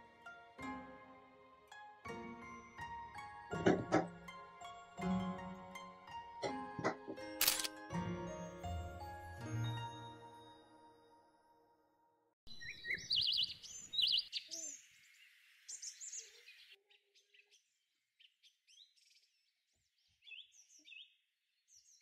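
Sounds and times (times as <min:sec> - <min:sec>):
songbirds chirping and trilling: 0:12.5 - 0:22.0.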